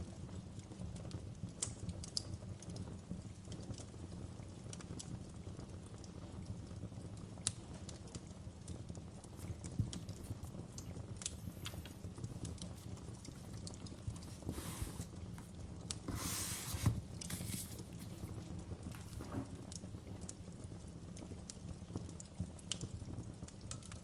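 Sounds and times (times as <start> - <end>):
fire hissing: 9.4 - 19.3.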